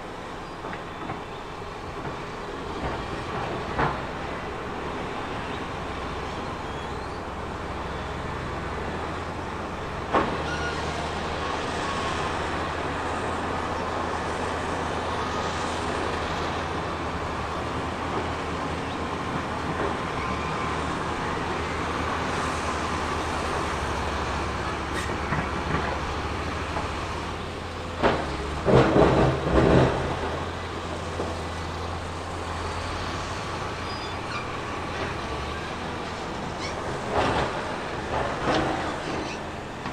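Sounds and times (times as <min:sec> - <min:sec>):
heavy diesel machine running: 0:00.0 - 0:39.9
loud clanks and knocks: 0:27.9 - 0:30.6.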